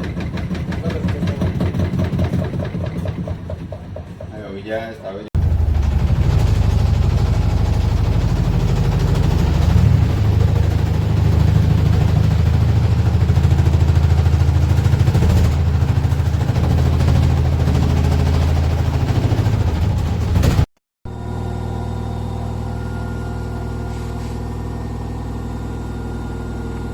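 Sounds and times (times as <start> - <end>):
washing machine rumbling: 0.0 - 20.7.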